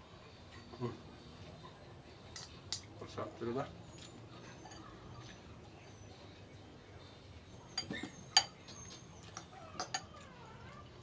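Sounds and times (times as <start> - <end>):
utensil clinking against a dish: 2.3 - 3.2, 3.9 - 5.5, 7.7 - 10.3.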